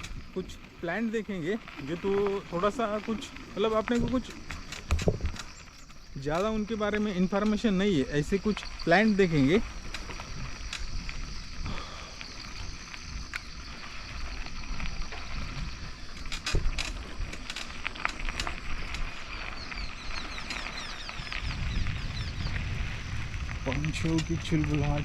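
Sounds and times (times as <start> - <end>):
bicycle clicks and rattles: 0.0 - 25.0
bicycle tyres rumbling: 0.0 - 25.0
high insect buzz: 0.0 - 25.0
wind on microphone: 3.8 - 5.6, 18.3 - 25.0.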